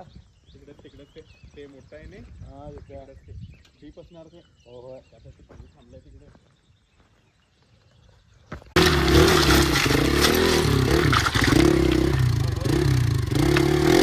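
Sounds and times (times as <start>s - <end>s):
motorcycle engine revving: 8.8s - 14.0s.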